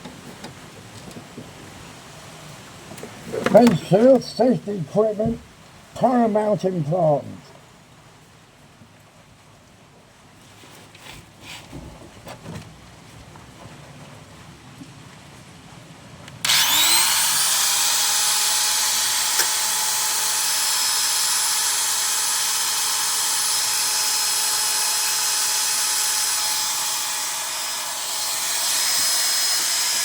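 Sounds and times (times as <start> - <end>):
rotary tool whining on metal: 16.4 - 30.0.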